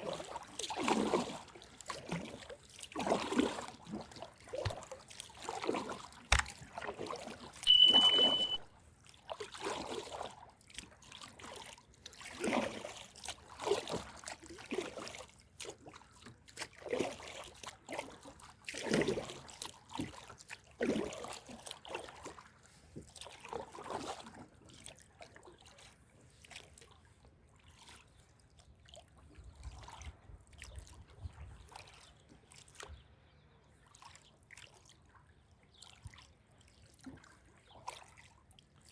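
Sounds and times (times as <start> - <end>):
water splashing around a kayak: 0.0 - 38.9
short high beep: 7.7 - 8.7.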